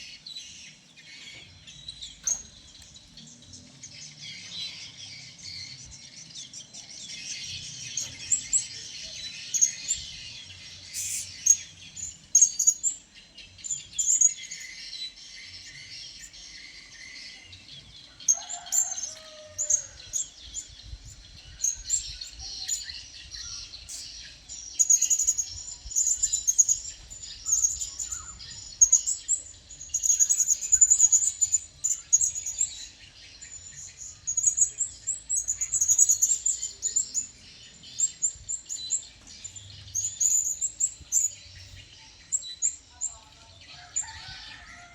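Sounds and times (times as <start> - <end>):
parrots chirping: 10.9 - 11.6.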